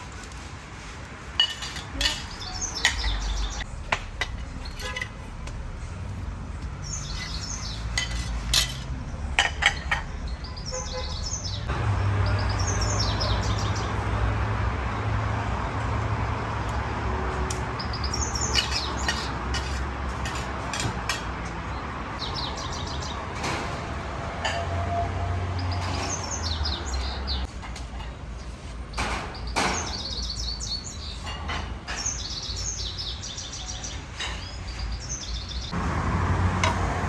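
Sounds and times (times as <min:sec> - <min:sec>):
kitchen clatter: 0:01.4 - 0:05.3, 0:07.2 - 0:10.2
metal dishes clinking: 0:01.4 - 0:05.3, 0:07.1 - 0:10.3, 0:24.4 - 0:24.9
small birds chirping: 0:01.5 - 0:03.7, 0:06.1 - 0:14.1, 0:17.5 - 0:20.4, 0:21.4 - 0:23.4, 0:25.4 - 0:27.6, 0:28.3 - 0:36.0.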